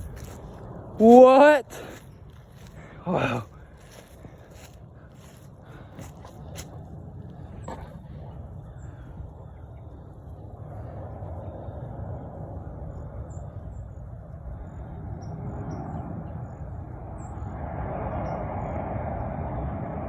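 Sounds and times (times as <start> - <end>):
jet flying overhead: 0.0 - 20.0
small birds chirping: 1.8 - 10.7.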